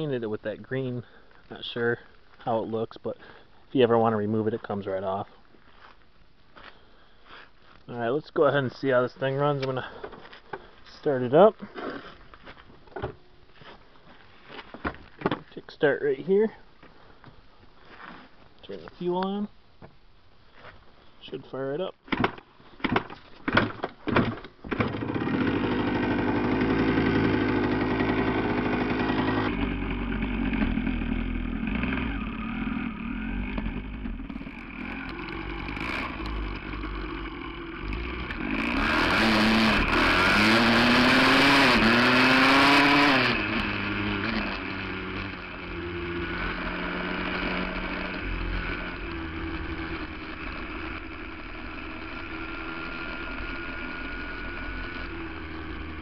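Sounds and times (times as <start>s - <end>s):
dirt bike engine idling and revving: 24.7s - 56.0s.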